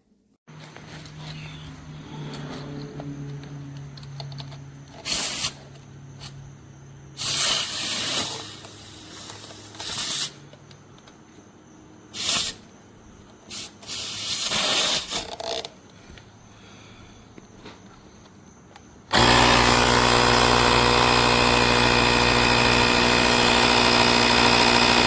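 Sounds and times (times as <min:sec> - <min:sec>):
air hissing in bursts: 0:05.0 - 0:05.6, 0:07.2 - 0:10.4, 0:12.1 - 0:12.6, 0:13.5 - 0:15.3.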